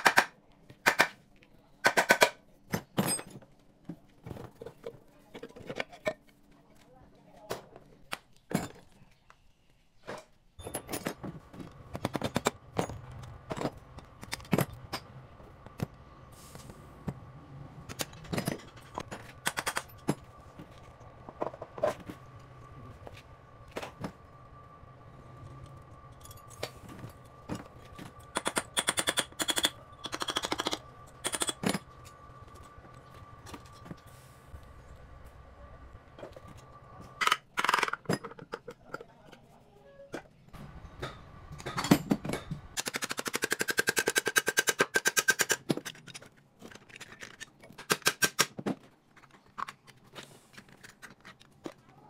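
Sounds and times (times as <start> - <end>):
steady machine hum: 10.6 - 37.3.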